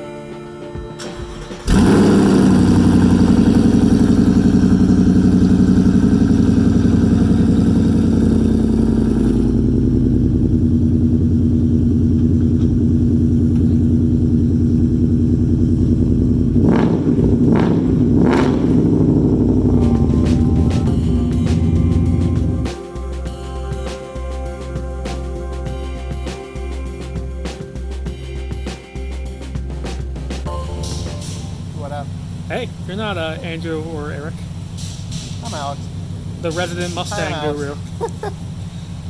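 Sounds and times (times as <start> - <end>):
engine throttle blips: 1.0 - 22.9, 30.5 - 39.0
car engine idling: 1.0 - 26.0, 30.5 - 39.0.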